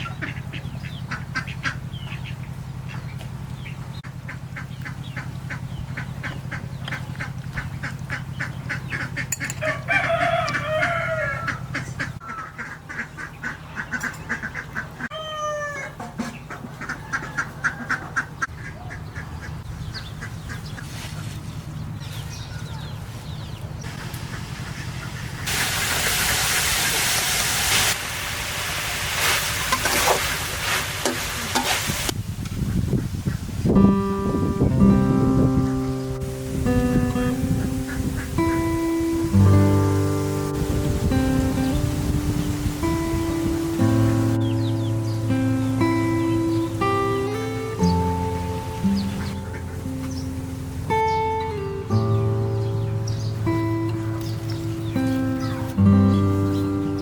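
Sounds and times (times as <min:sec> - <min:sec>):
poultry calling: 0:00.0 - 0:27.4, 0:43.9 - 0:57.0
rooster crowing: 0:09.4 - 0:12.5, 0:15.1 - 0:16.0, 0:16.9 - 0:18.2.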